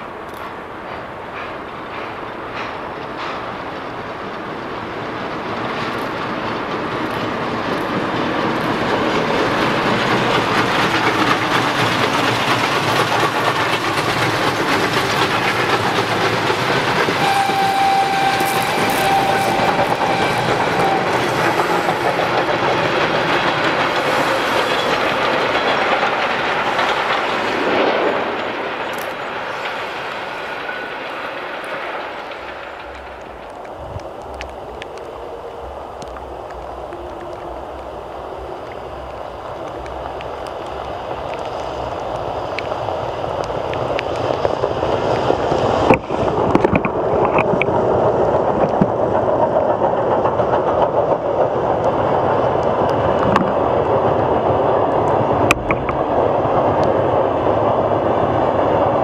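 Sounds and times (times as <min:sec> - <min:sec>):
train rumbling and clattering: 0:00.0 - 0:59.0
train horn blast: 0:17.2 - 0:22.1.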